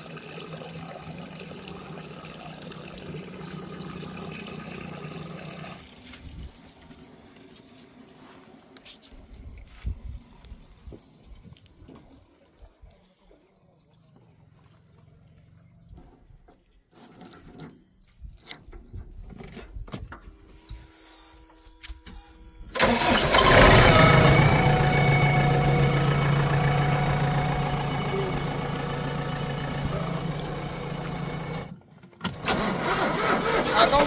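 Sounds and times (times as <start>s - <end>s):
diesel engine starting and running: 0.0s - 8.6s, 20.8s - 34.0s
high steady beep: 20.7s - 22.8s.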